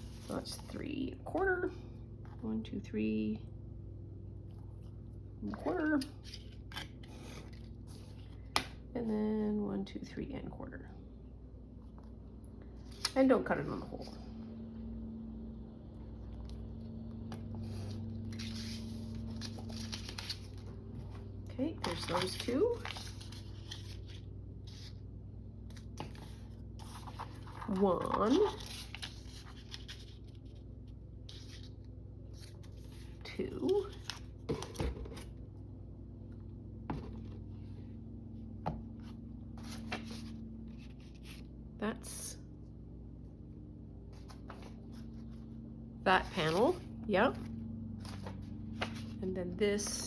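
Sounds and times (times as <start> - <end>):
low steady hum: 0.0 - 50.0
paper scraping and rustling: 17.5 - 25.0, 25.7 - 30.6, 39.0 - 41.5, 48.0 - 49.2.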